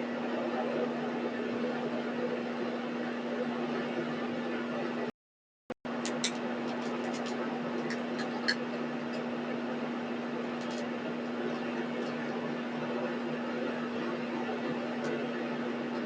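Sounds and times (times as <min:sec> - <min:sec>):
machine hum: 0:00.0 - 0:05.1, 0:05.9 - 0:16.0.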